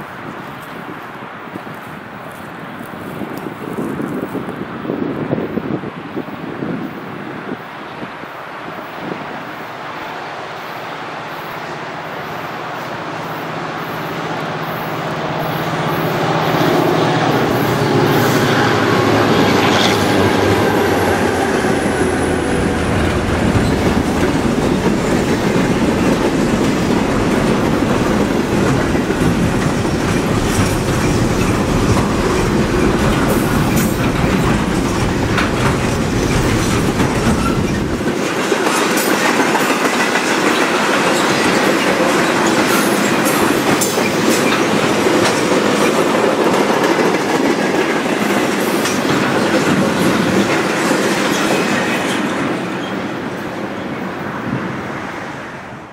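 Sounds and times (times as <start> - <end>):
diesel locomotive engines: 0.0 - 55.9
train wheels clickety-clack: 13.9 - 53.4.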